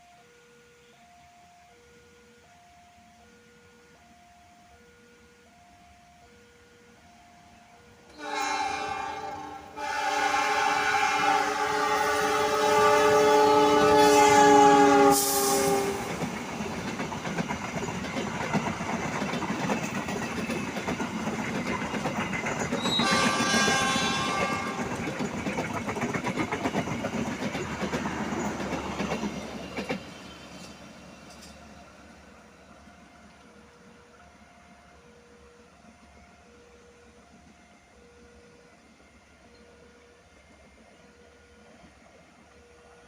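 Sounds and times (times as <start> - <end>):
train rumbling and clattering past: 6.6 - 43.0
train horn chord: 8.1 - 16.3, 22.8 - 25.1.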